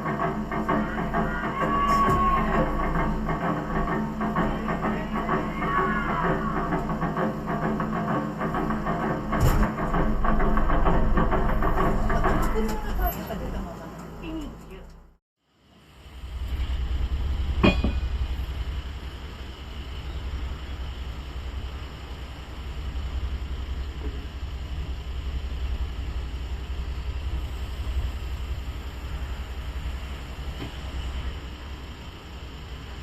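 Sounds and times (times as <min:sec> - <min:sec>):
diesel engine drone: 0:00.0 - 0:33.0
sharp metal clank: 0:17.6 - 0:18.2.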